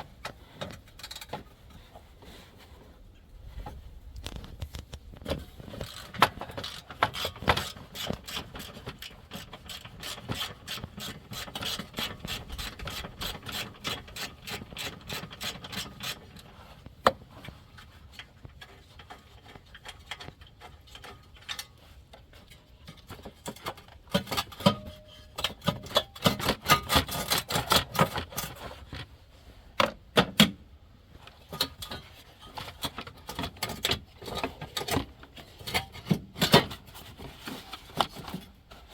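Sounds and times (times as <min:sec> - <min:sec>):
hand tools clicking and rubbing: 0:00.0 - 0:02.8, 0:04.2 - 0:29.0.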